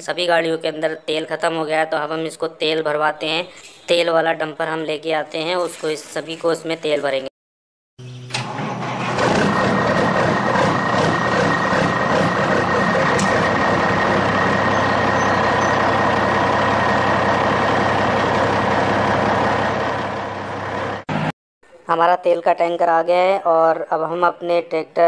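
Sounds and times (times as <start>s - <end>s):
truck engine idling: 8.6s - 21.1s.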